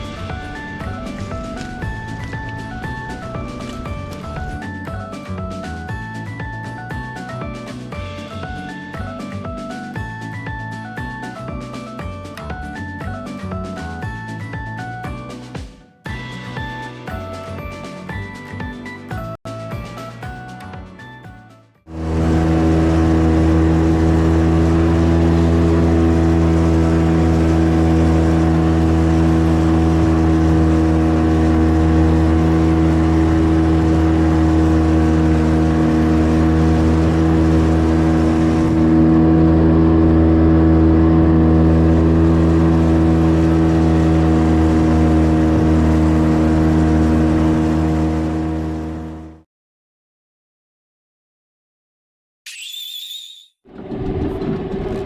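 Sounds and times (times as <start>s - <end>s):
engine running steadily: 0.0s - 15.5s, 21.9s - 49.4s.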